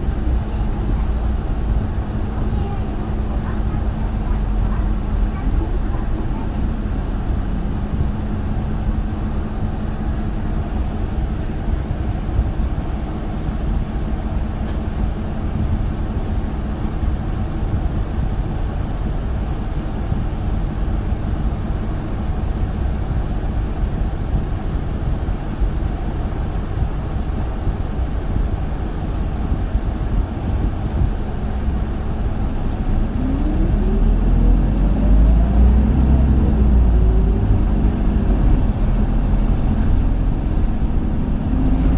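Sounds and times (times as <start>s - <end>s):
diesel bus engine humming: 0.0s - 41.9s
bus engine revving up: 32.2s - 41.9s.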